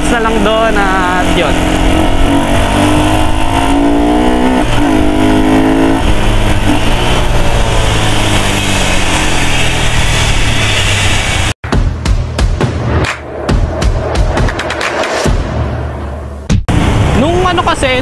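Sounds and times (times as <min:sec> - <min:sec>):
motorcycle engine accelerating: 0:00.0 - 0:11.6.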